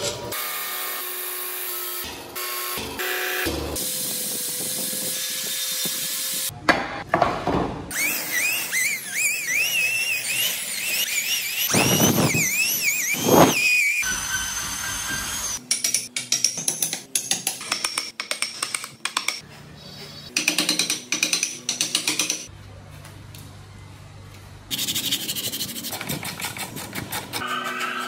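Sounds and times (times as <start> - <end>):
power tools cutting wood: 0.0 - 6.5, 7.9 - 15.6
high-pitched rotary tool whine: 7.9 - 15.6.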